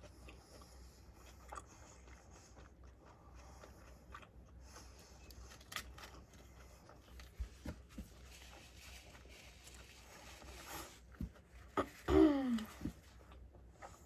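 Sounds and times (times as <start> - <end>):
person chewing food: 0.0 - 14.0
soft rustling: 5.7 - 13.4.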